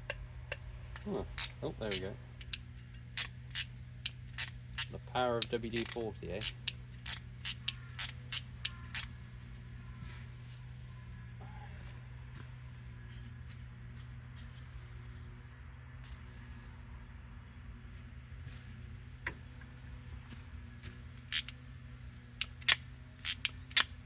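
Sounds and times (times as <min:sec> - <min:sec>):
metallic clicks of hand tool: 0:00.1 - 0:09.1, 0:21.2 - 0:21.6, 0:22.4 - 0:24.0
aerosol can hissing: 0:16.1 - 0:16.7.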